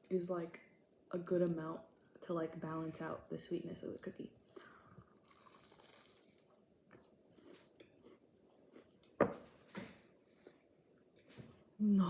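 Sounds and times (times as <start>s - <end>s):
chewing and crunching pastry: 5.0s - 9.2s.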